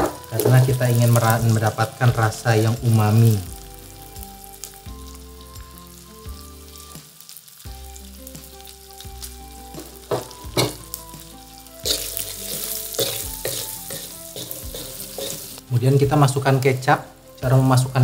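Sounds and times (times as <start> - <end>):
meat sizzling in hot oil: 0.0 - 18.0
spatula scraping a wok: 11.8 - 15.7.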